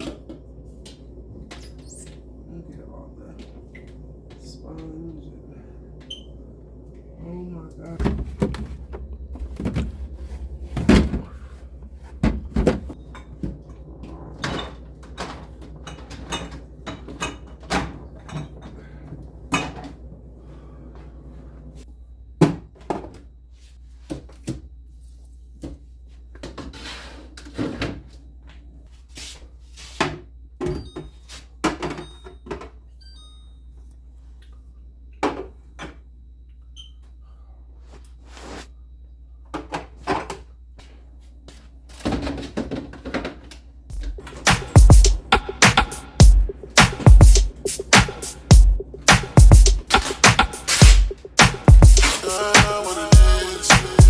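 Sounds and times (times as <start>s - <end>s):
steady low hum: 0.0s - 16.9s, 43.9s - 54.0s.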